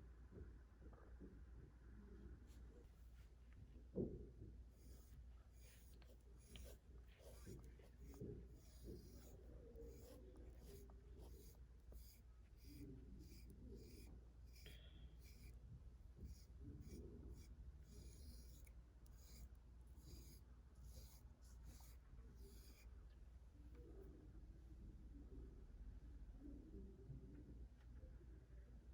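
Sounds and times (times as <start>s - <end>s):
brush scratching through cat fur: 4.7s - 22.9s.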